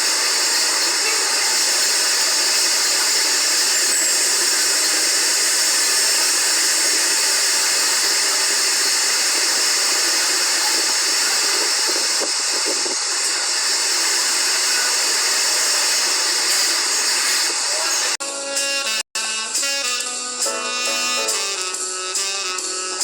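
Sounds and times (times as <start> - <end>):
rushing air hiss: 0.0 - 18.2.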